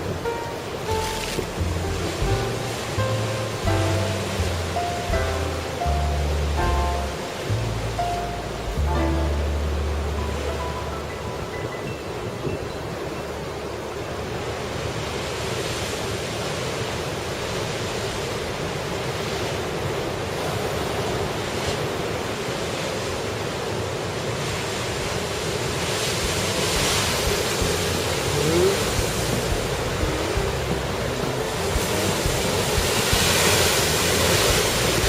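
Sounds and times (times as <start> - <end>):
loud wave crash: 0.0 - 12.4
heavy surf breaking: 0.0 - 35.0
strong wind: 0.0 - 35.0.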